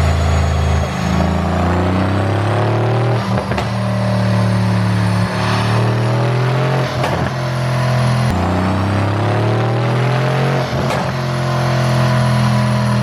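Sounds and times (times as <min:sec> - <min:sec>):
car engine revving under load: 0:00.0 - 0:13.0
exhaust cracks: 0:01.2 - 0:13.0.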